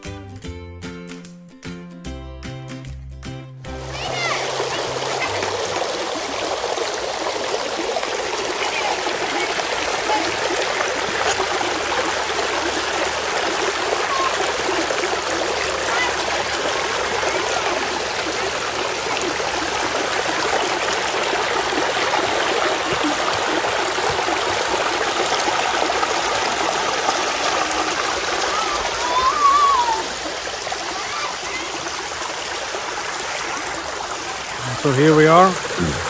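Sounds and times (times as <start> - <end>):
stream running over rocks: 3.7 - 36.0.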